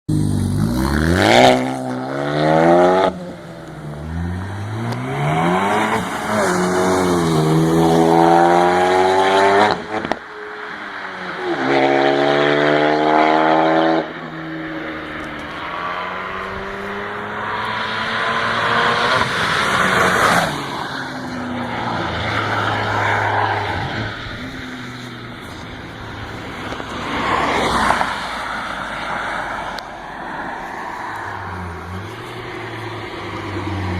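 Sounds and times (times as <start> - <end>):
car engine revving: 0.1 - 10.2.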